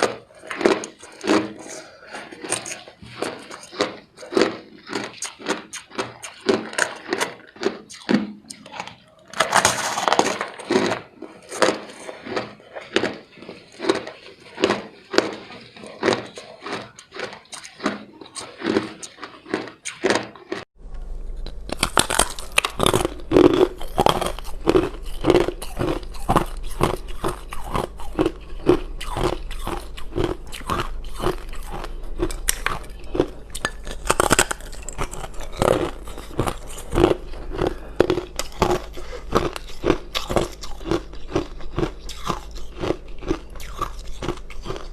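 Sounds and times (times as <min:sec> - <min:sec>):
ice crunching while chewed: 0:00.0 - 0:20.7, 0:21.3 - 0:44.9
steady low hum: 0:20.8 - 0:44.9.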